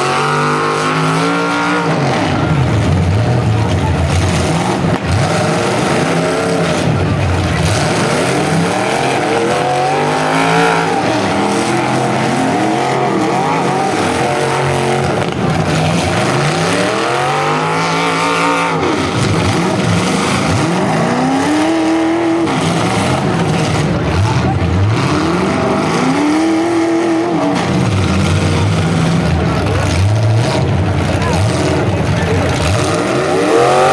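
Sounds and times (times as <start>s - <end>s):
car engines revving hard: 0.0s - 33.9s.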